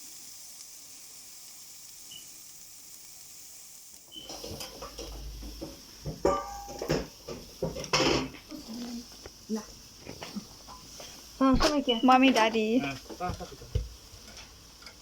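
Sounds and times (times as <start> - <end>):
food sizzling on a grill: 0.0 - 15.0.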